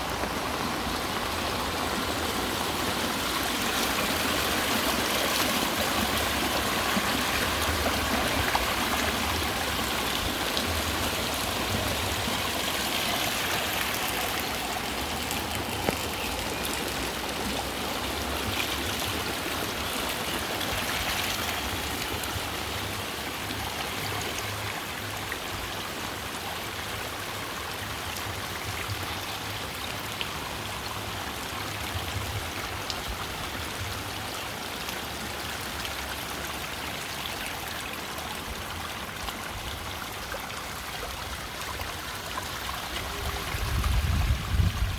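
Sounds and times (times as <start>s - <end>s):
heavy rain falling: 0.0s - 18.4s
raindrops splatting: 13.4s - 18.8s.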